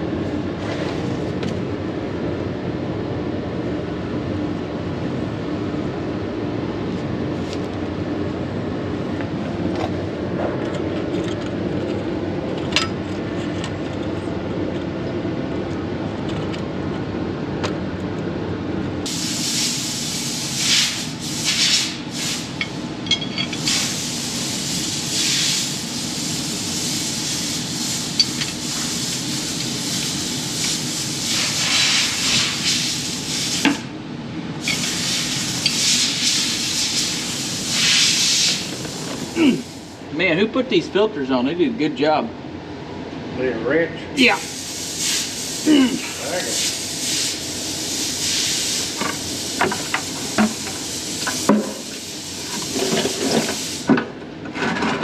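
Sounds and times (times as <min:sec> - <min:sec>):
hissing spray bursts: 0:19.1 - 0:22.6, 0:23.6 - 0:33.7, 0:34.6 - 0:40.0, 0:44.2 - 0:53.9.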